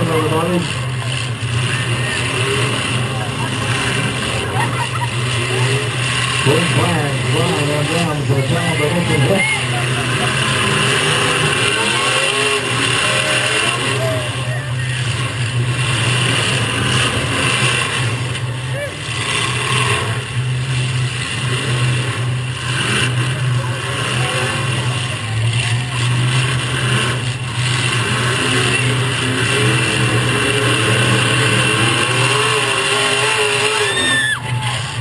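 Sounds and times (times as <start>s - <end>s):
car engines revving: 0.0s - 35.0s
high squeal: 32.0s - 34.8s.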